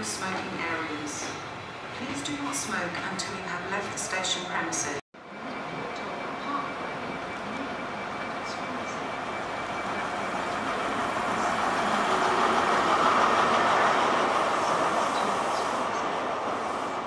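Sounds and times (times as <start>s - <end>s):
train engine and wheels rumbling: 0.0s - 17.0s.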